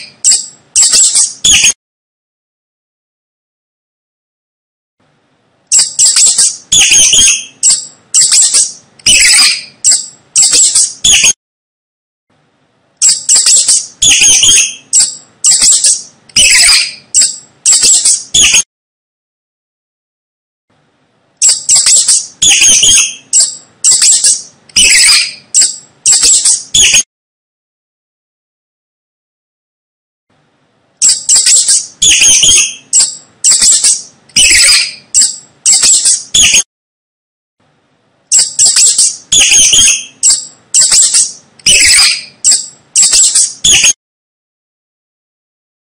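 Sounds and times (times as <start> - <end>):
mouse squeaking: 0.0 - 1.8, 5.7 - 11.4, 13.0 - 18.6, 21.4 - 27.0, 31.0 - 36.7, 38.3 - 44.0.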